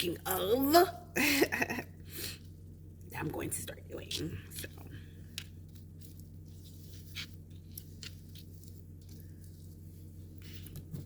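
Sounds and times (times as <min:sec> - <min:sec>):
steady low hum: 0:00.0 - 0:11.0
soft squishing: 0:02.2 - 0:11.0.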